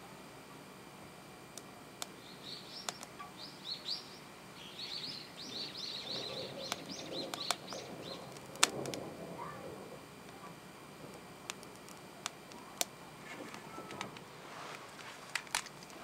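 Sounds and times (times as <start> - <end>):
bird chirping: 2.2 - 8.4
sharp clicks: 2.8 - 3.3, 6.6 - 9.0, 11.1 - 14.3.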